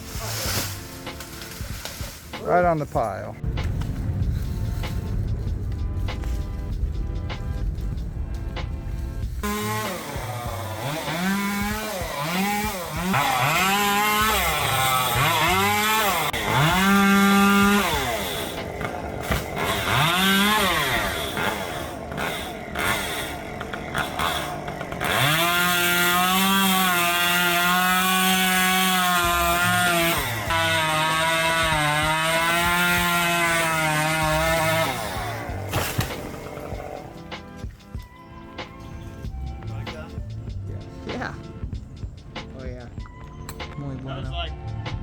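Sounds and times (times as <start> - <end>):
chainsaw revving: 9.4 - 37.6.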